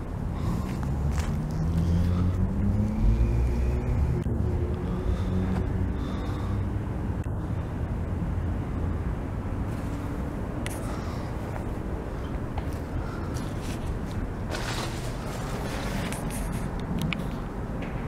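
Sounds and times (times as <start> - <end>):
steady outdoor rumble: 0.0 - 18.0
vehicle engine passing by: 0.4 - 7.3.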